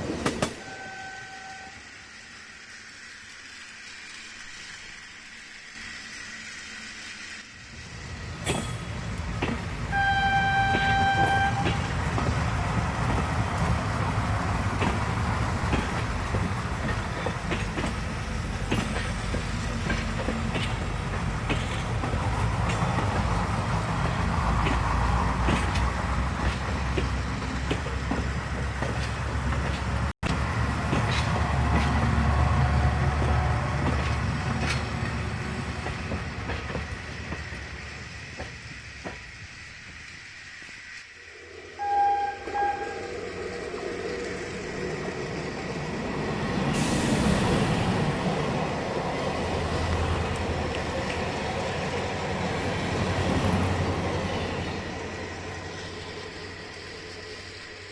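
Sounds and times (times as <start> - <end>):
toy train horn: 0.6 - 2.0, 9.9 - 11.9, 41.4 - 43.4.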